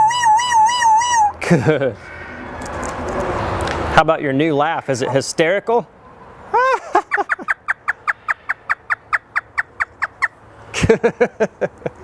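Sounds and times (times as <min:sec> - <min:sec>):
parrot imitating laughter: 0:06.5 - 0:10.3.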